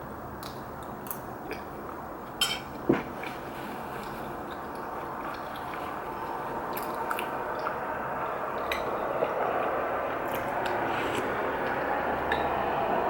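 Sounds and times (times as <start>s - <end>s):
wet chewing and slurping: 3.2s - 12.7s.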